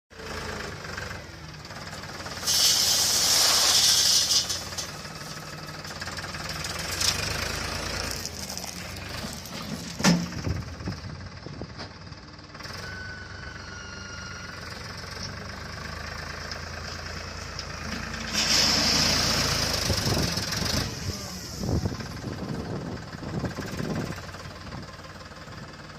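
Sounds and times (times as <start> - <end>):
loud hiss: 2.4 - 4.7.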